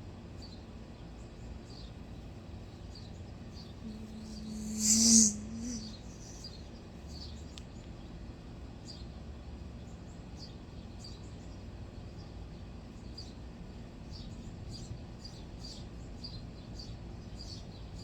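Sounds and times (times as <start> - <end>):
small bird chirping: 3.8 - 6.7.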